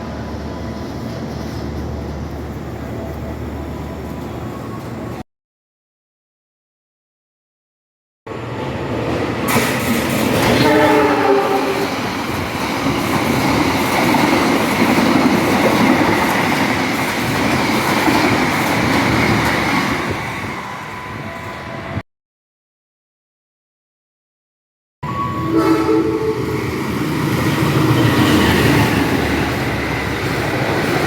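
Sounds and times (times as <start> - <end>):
train horn blast: 10.5 - 11.9, 25.0 - 26.6
train wheels rushing past: 25.7 - 31.0.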